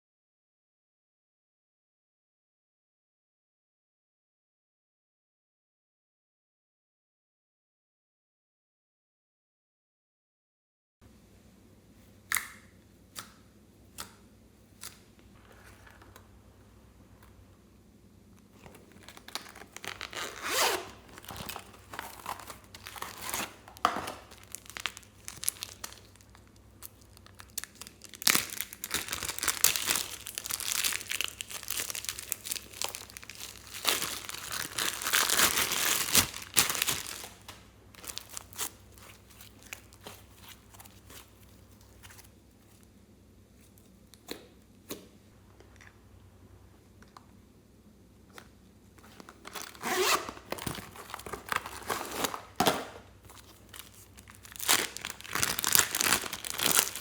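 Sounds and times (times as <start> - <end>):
slime tearing and crackling: 18.8 - 41.3, 49.4 - 52.6, 53.3 - 57.0.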